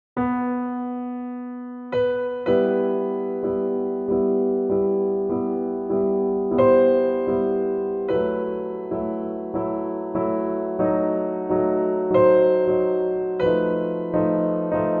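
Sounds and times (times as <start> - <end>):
slow gentle piano music: 0.2 - 15.0.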